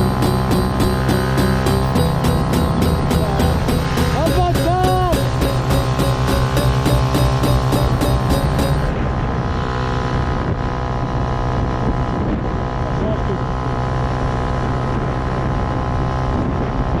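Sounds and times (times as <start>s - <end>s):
engine running: 0.0s - 11.6s.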